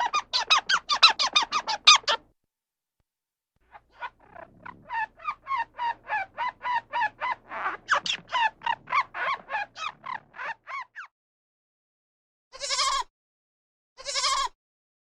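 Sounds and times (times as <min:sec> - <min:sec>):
young animal crying: 0:00.0 - 0:02.2, 0:03.9 - 0:10.8, 0:12.6 - 0:13.1, 0:14.0 - 0:14.6.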